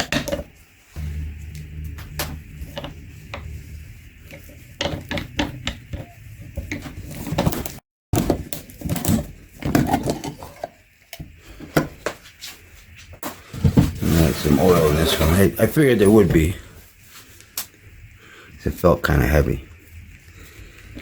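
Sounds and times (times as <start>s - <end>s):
low hum: 1.0s - 7.8s.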